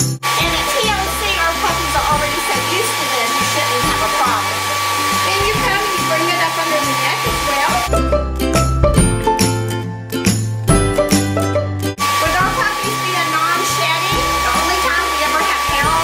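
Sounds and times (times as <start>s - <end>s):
hair dryer blowing with whine: 0.0s - 7.9s, 12.0s - 16.0s
background music: 0.0s - 16.0s.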